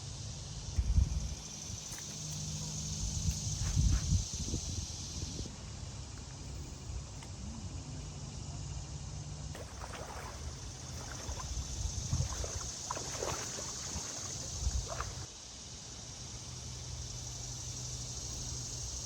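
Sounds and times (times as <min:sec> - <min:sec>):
creek water trickling: 0:09.5 - 0:17.6.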